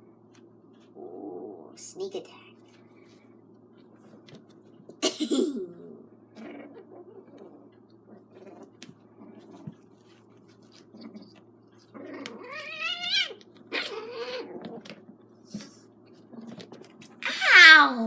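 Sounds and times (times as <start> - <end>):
kitten crying: 12.1 - 14.5, 17.2 - 18.0.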